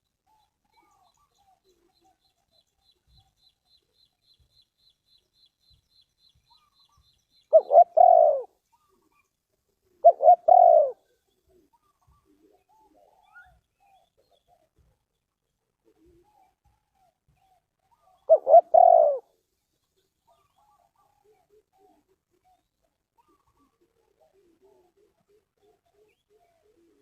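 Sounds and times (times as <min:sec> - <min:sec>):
dove cooing: 0:07.5 - 0:09.1, 0:10.0 - 0:13.6, 0:17.9 - 0:19.3, 0:23.2 - 0:27.0.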